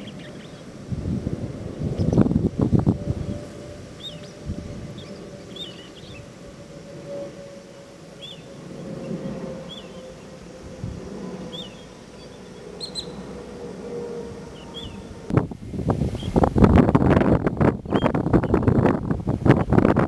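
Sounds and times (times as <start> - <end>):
low wind rumble: 0.0 - 20.0
small bird chirping: 11.5 - 13.2.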